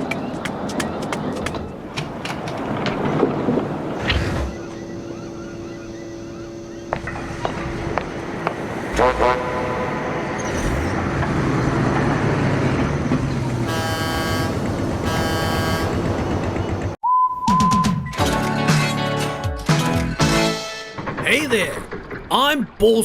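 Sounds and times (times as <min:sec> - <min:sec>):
horn blast: 0:08.9 - 0:10.2, 0:13.6 - 0:16.7
cartoon horn toot: 0:13.7 - 0:16.4
steady hum: 0:13.7 - 0:16.7.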